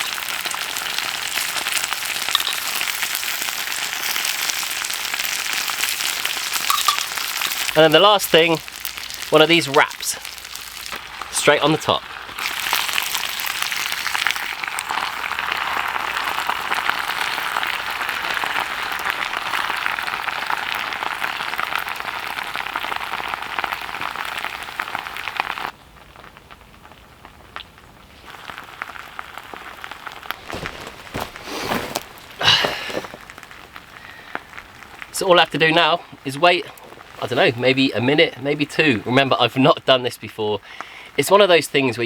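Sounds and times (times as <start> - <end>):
heavy rain hiss: 0.0 - 14.5, 28.2 - 42.0.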